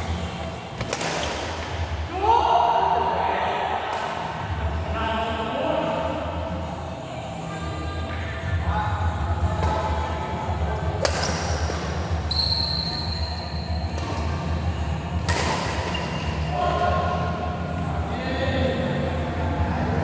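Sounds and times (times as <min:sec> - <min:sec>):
brief high squeal: 0:12.3 - 0:13.5.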